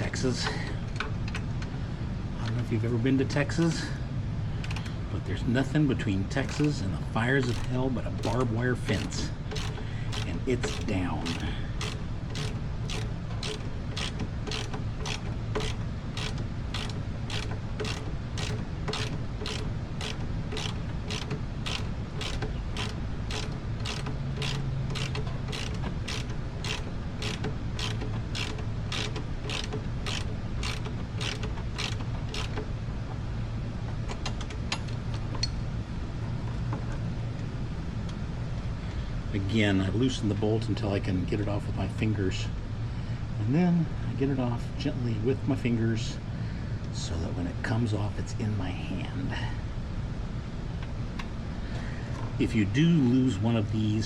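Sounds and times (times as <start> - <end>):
steady low hum: 0.0 - 54.0
ratchet wrench clicking: 6.4 - 6.8, 7.4 - 32.7.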